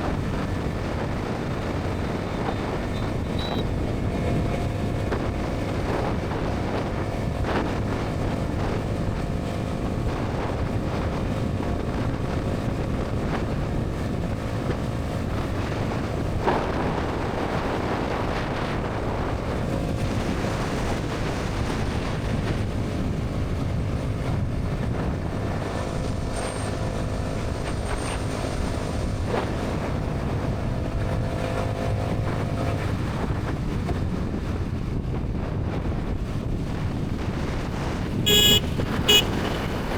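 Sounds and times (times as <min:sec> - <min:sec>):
motorcycle engine cruising: 0:00.0 - 0:39.9
wind buffeting microphone: 0:00.0 - 0:39.9.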